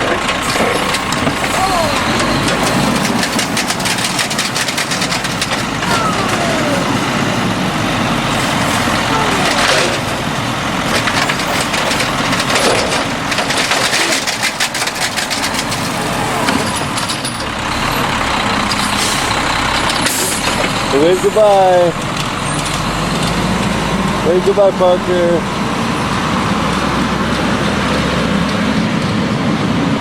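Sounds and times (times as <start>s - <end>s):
trash crunching and clattering: 0.0s - 24.3s
garbage truck engine running: 0.0s - 30.0s.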